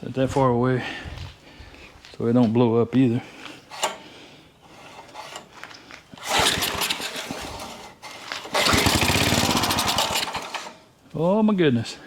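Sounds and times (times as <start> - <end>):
small engine firing and running: 6.2 - 7.6, 8.5 - 10.7.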